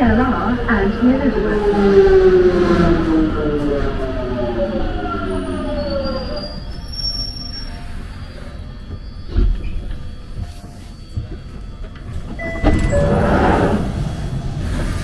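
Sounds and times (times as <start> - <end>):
train motor whine: 4.0 - 15.0
high brake squeal: 5.1 - 11.2, 12.3 - 14.2.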